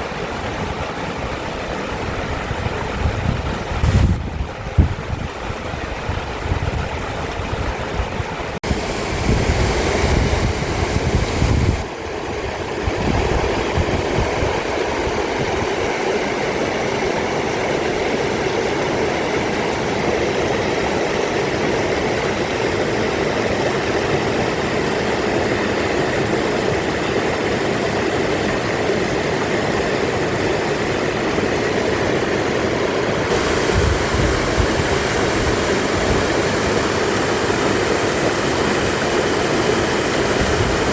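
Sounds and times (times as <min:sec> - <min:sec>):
stream rushing over rocks: 0:00.0 - 0:40.9
wind buffeting microphone: 0:00.4 - 0:16.0, 0:33.3 - 0:40.9.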